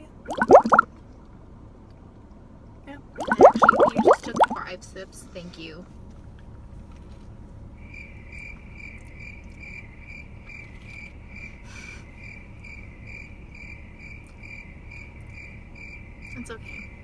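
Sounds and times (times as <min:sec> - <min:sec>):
low steady hum: 0:00.0 - 0:17.0
cricket chirping: 0:07.7 - 0:17.0.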